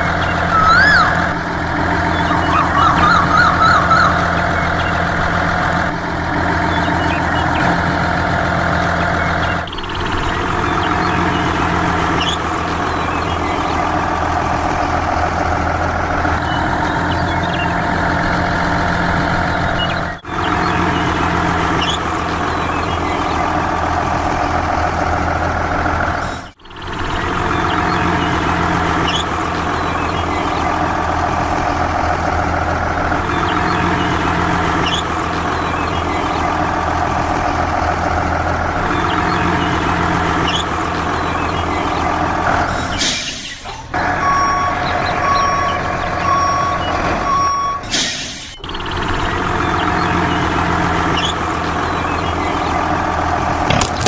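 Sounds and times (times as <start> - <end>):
heavy truck engine droning: 0.0 - 54.0.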